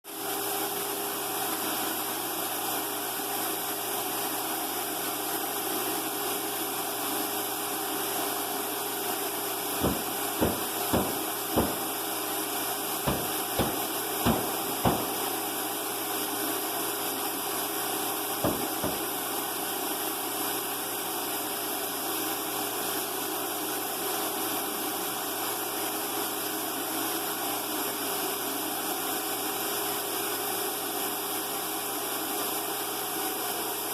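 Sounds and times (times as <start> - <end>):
sharp taps: 9.8 - 11.9, 13.1 - 15.3, 18.4 - 19.1.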